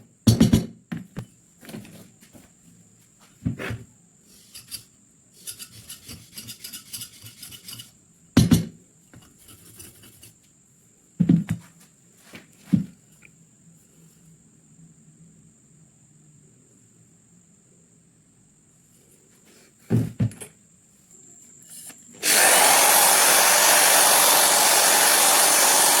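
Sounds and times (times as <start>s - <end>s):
rasping filing strokes: 5.4s - 7.9s, 22.2s - 26.0s.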